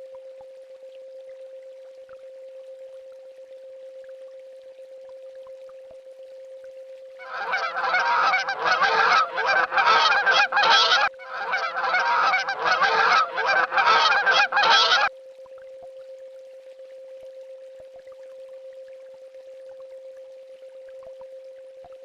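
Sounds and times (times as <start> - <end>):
swan honking: 7.2 - 15.1.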